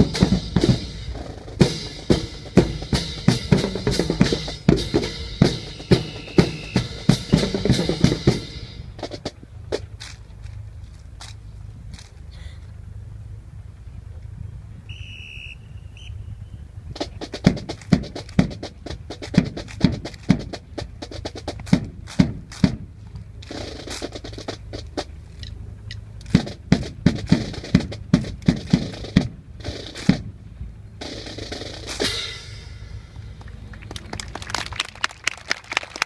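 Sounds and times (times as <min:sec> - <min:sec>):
rifles clacking in unison: 0:09.0 - 0:12.7, 0:17.0 - 0:30.3.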